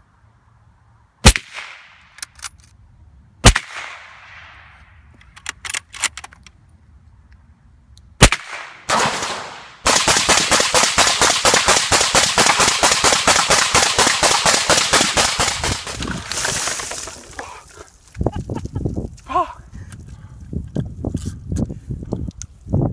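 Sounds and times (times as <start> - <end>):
suppressed gunfire: 1.2 - 2.0, 3.4 - 4.6, 8.2 - 16.2.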